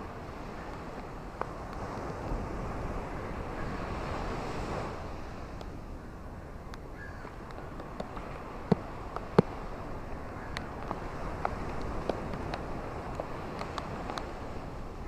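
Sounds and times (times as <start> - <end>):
ocean waves washing on shore: 0.0 - 15.0
faint ticks: 0.6 - 2.4, 5.5 - 5.8, 10.4 - 14.4.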